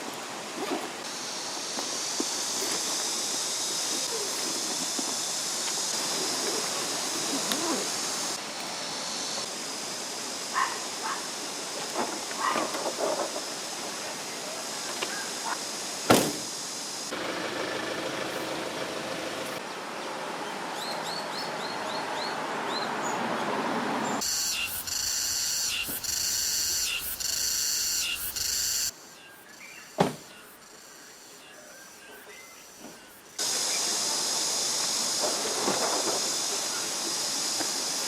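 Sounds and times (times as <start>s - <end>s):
high pulsing buzz: 24.2s - 28.9s.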